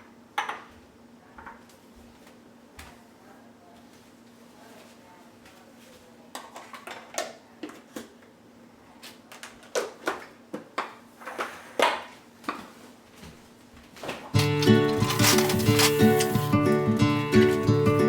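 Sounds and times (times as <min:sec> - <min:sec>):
kitchen utensils clattering: 0:14.3 - 0:17.9.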